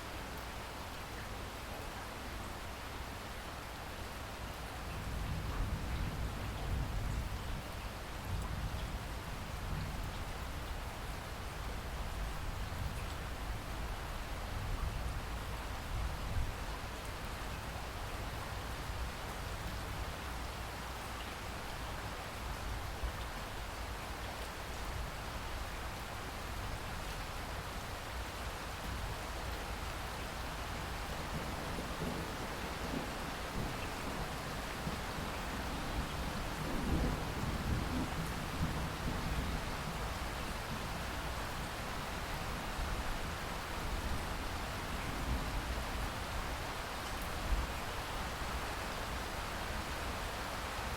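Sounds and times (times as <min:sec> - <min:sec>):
heavy rain falling: 0:03.5 - 0:50.9
low rumble of thunder: 0:05.0 - 0:11.2, 0:30.8 - 0:42.3, 0:43.0 - 0:46.3.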